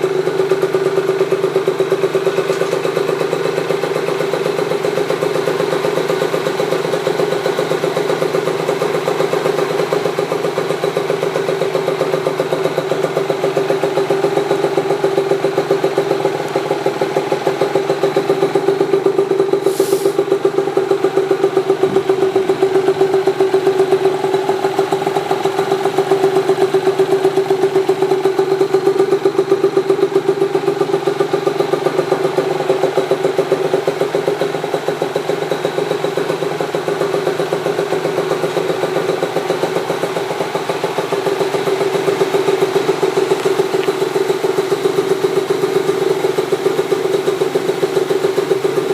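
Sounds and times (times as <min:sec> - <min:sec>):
two-stroke motorcycle idling: 0:00.0 - 0:48.9
brief hiss: 0:19.6 - 0:20.2.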